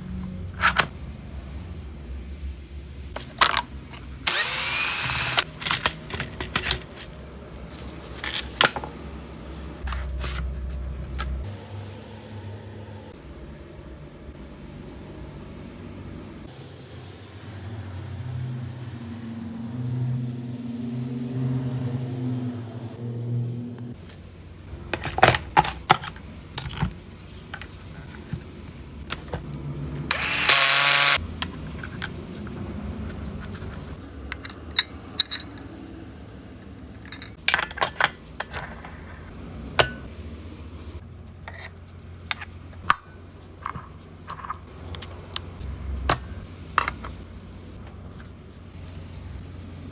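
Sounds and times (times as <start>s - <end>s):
clicks and knocks of tools: 3.2s - 7.1s, 34.3s - 35.7s, 46.1s - 47.2s
power tool whirring: 4.2s - 5.5s, 30.1s - 31.2s.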